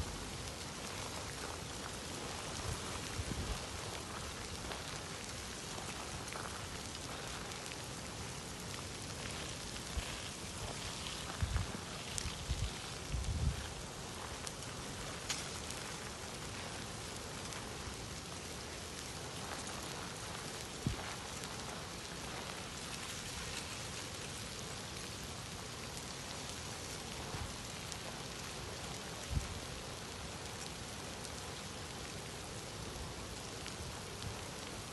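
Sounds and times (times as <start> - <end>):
rain falling hiss: 0.0 - 34.9.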